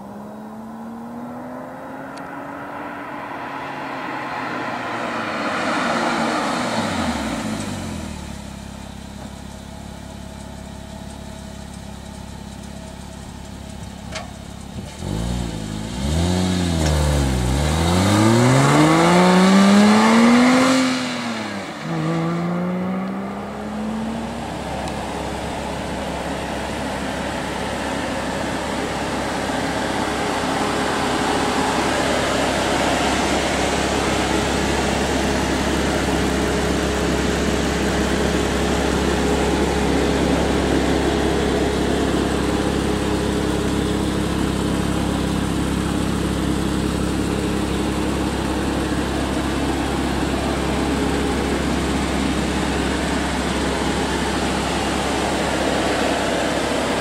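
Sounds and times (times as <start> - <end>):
sports car accelerating past: 0.0 - 8.5, 15.0 - 42.9.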